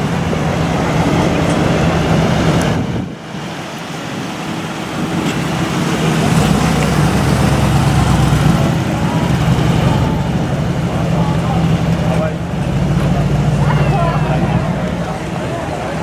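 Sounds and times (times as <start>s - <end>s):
car engine running: 4.8s - 16.0s.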